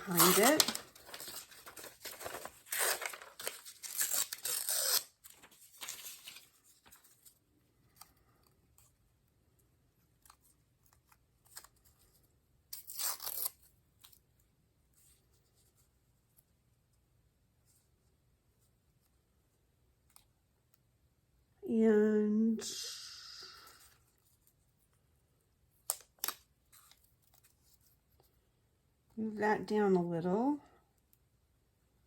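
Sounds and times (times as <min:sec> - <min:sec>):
paper tearing: 0:00.0 - 0:07.0, 0:12.7 - 0:13.7
paper rustling: 0:00.0 - 0:08.2.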